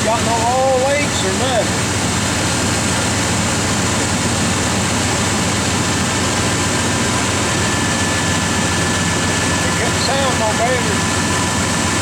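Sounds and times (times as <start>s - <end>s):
pickup engine idling: 0.0s - 12.0s.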